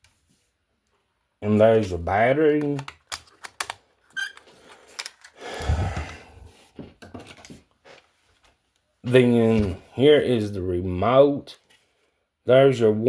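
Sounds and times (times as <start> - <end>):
plastic parts clicking and knocking: 2.6 - 5.4.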